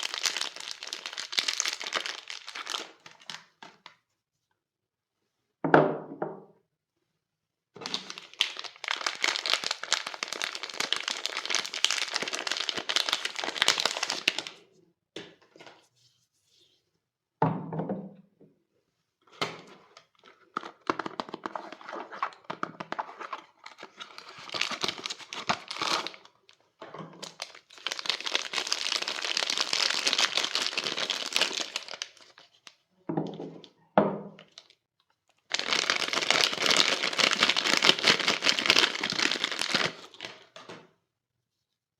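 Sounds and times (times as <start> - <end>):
soap wrapping crinkling: 0.0 - 4.0, 7.8 - 14.6, 19.8 - 33.8, 34.4 - 40.6.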